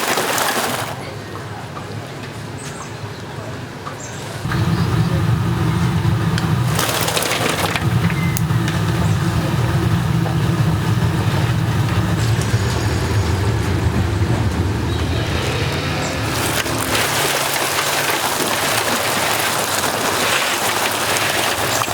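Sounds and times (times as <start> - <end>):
low machine hum: 4.4 - 21.9
oil sizzling and crackling: 4.5 - 12.2, 16.2 - 21.9.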